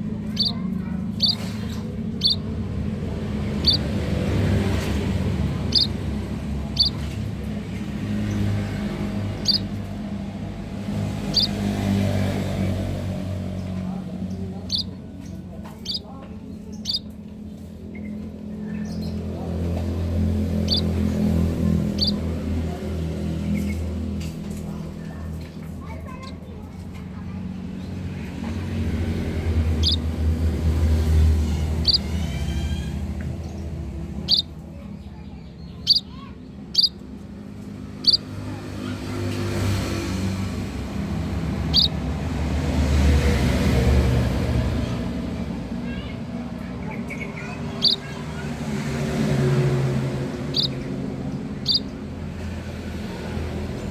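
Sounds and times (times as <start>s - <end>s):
low engine-like hum: 0.0s - 53.9s
bird chirps: 0.3s - 2.5s, 3.4s - 7.1s, 8.2s - 9.8s, 11.2s - 11.7s, 13.7s - 17.1s, 20.4s - 23.9s, 29.7s - 37.0s, 37.9s - 38.4s, 41.5s - 42.0s, 46.8s - 48.2s, 50.1s - 52.0s.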